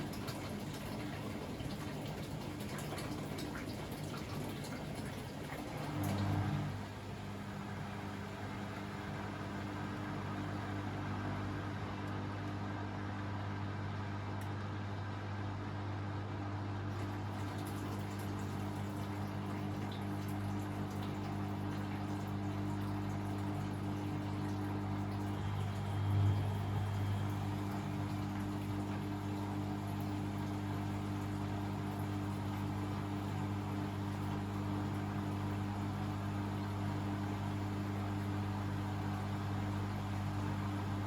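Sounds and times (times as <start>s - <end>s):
water running in washing machine: 0.0s - 41.0s
steady low hum: 22.6s - 32.9s.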